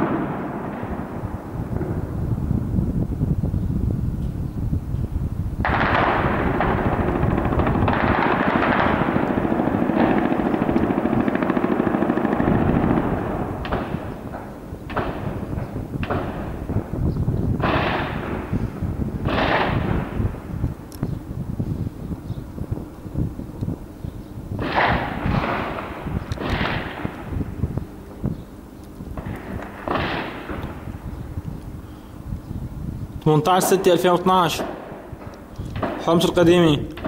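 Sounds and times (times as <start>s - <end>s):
automatic gunfire: 5.7s - 14.2s, 19.3s - 20.1s.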